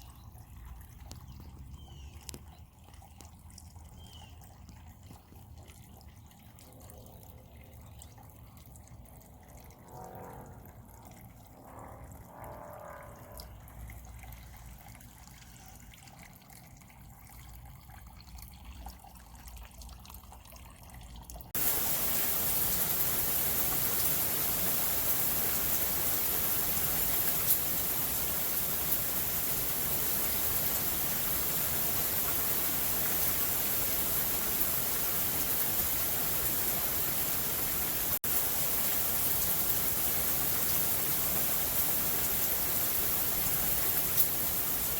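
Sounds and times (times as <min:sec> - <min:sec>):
water dripping and trickling: 0:00.0 - 0:44.9
heavy rain hissing: 0:21.6 - 0:44.9.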